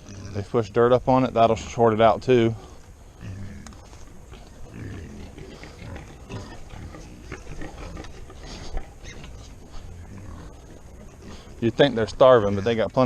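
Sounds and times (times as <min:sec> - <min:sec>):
pigs grunting: 0:00.0 - 0:13.0
pigs chomping and clicking: 0:03.2 - 0:13.0.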